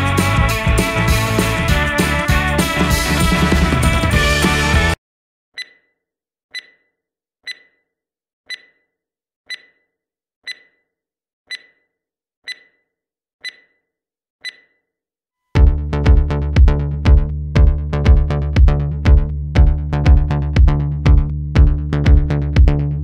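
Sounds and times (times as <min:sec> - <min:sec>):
background music: 0:00.0 - 0:05.0
electronic countdown beeps: 0:05.6 - 0:05.9, 0:06.5 - 0:06.9, 0:07.5 - 0:07.8, 0:08.5 - 0:08.9, 0:09.5 - 0:09.9, 0:10.5 - 0:10.9, 0:11.5 - 0:11.9, 0:12.5 - 0:13.8, 0:14.4 - 0:14.8.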